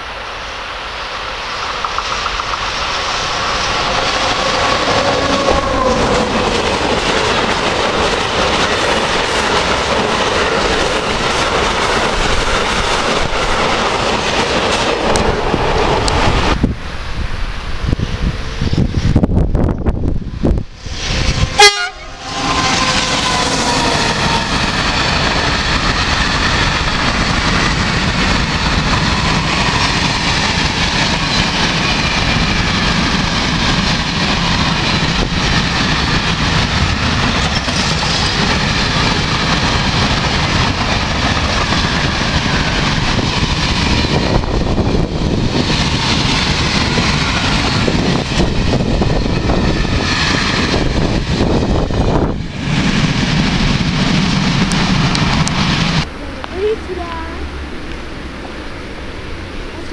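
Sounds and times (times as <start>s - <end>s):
train wheels rolling on rails: 0.0s - 59.9s
locomotive horn blast: 21.3s - 24.4s.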